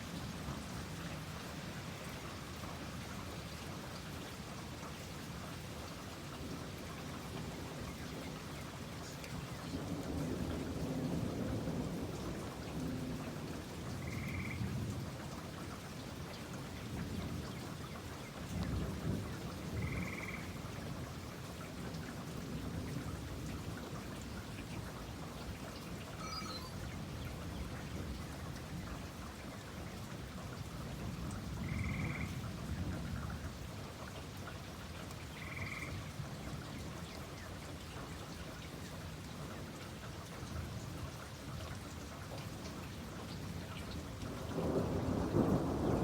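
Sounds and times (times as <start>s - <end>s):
steady rain falling: 0.0s - 46.0s
short high chirp: 26.2s - 26.8s
thunder rumbling: 44.3s - 46.0s.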